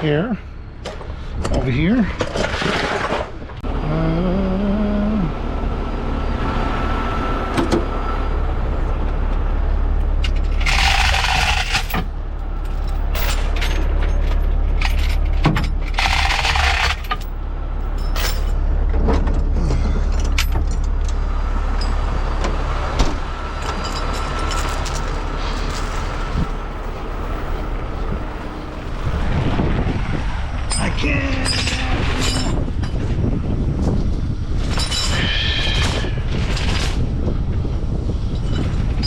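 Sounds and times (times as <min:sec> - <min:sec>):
truck engine idling: 0:03.6 - 0:30.6.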